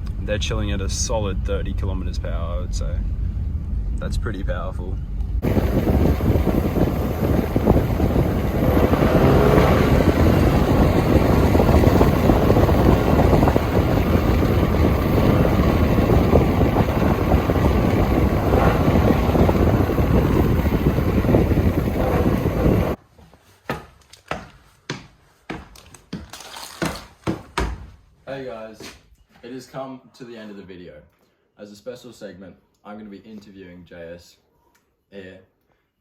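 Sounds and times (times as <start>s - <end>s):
vehicle engine and road rumble: 0.0s - 23.0s
wind buffeting microphone: 5.3s - 23.0s.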